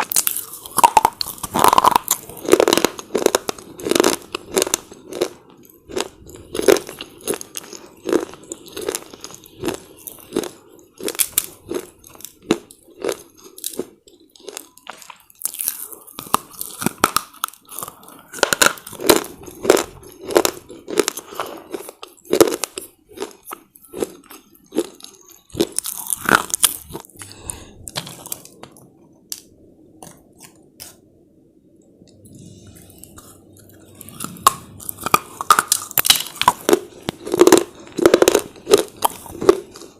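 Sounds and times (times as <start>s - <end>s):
person crunching brittle slate: 0.0s - 23.4s, 34.1s - 39.9s.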